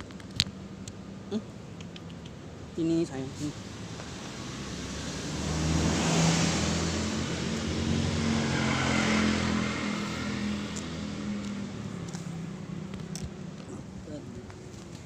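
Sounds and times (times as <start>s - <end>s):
motor vehicle engine passing: 3.3s - 13.6s.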